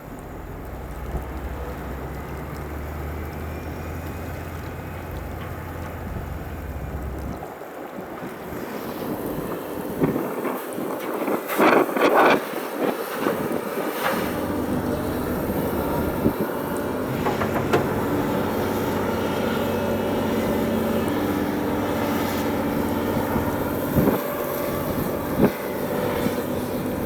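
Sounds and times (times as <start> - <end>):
heavy diesel engine humming: 0.0 - 10.2, 13.2 - 27.0
loud clattering: 14.3 - 20.4.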